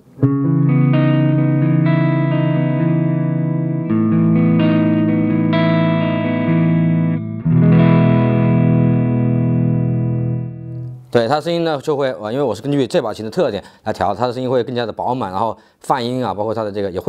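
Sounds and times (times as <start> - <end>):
electric guitar chords: 0.0 - 11.2.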